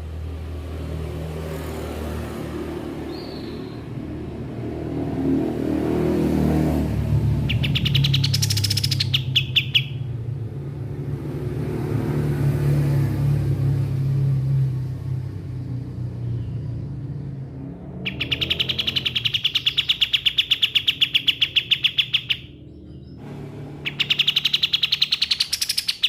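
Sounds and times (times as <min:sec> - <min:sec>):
bird trilling: 0:07.4 - 0:10.2, 0:17.8 - 0:23.2, 0:23.8 - 0:26.0.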